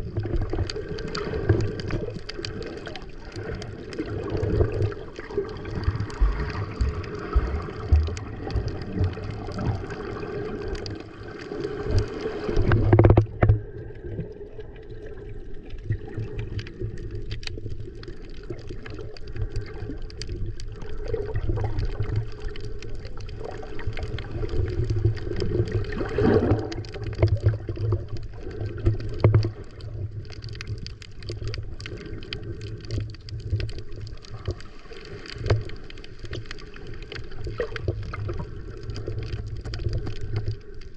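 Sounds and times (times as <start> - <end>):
water sloshing and gurgling: 0.0 - 40.9
water splash: 25.8 - 27.6.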